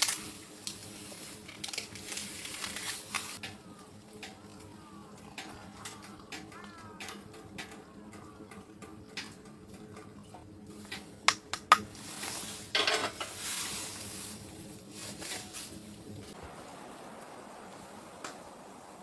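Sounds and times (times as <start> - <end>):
sizzling hiss: 11.8 - 19.0
cookware clinking: 12.7 - 13.4.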